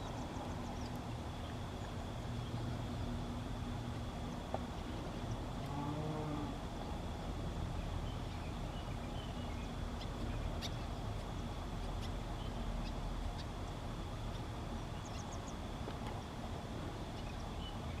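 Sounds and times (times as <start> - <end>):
constant high thin tone: 0.0 - 18.0
faint high chirps and ticks: 7.8 - 16.2.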